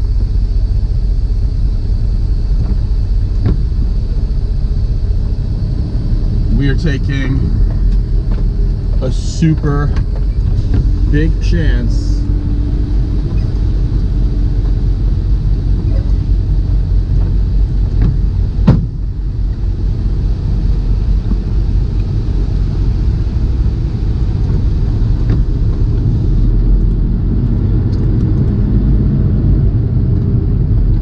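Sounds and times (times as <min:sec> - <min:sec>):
truck diesel engine rumbling: 0:00.0 - 0:31.0
sharp knock: 0:18.0 - 0:19.0.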